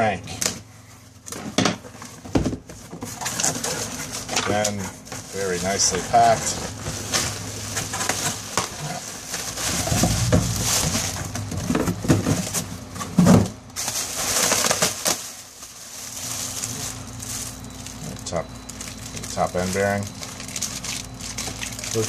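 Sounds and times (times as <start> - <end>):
packing material crinkling: 3.0 - 13.0, 13.7 - 22.0.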